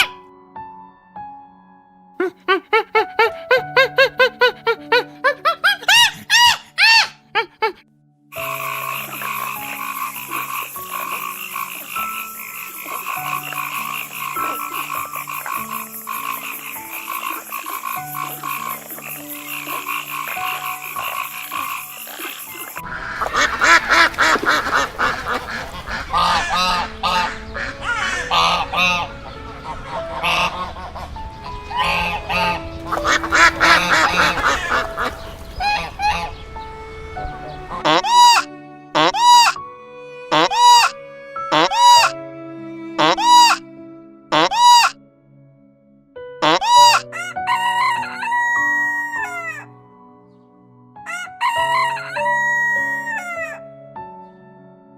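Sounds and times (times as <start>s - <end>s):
chorus of croaking calls: 2.2s - 36.5s, 37.5s - 39.6s, 40.3s - 42.1s, 43.0s - 43.6s, 44.3s - 45.0s, 46.4s - 49.7s.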